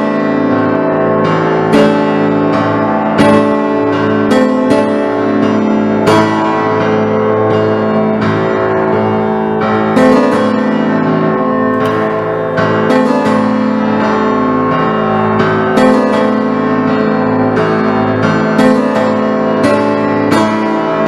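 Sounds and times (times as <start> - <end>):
instrumental piano music: 0.0 - 21.0.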